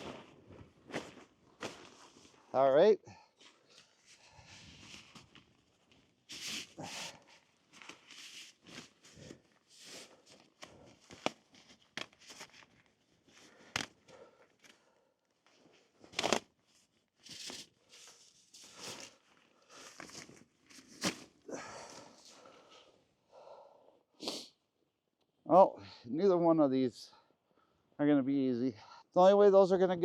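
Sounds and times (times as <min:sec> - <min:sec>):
vinyl covers rustling and crinkling: 0:00.0 - 0:02.5, 0:03.4 - 0:22.5.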